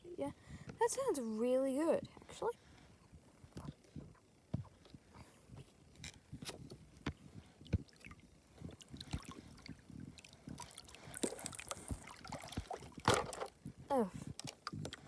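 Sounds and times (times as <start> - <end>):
water sloshing and trickling: 6.0 - 15.0.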